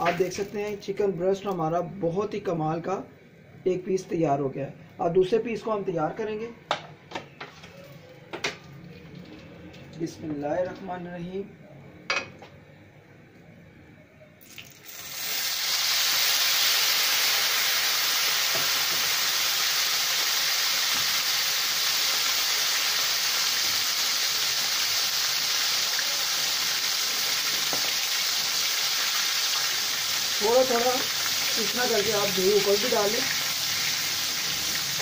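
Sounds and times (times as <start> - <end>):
chicken sizzling in hot oil: 14.5 - 35.0.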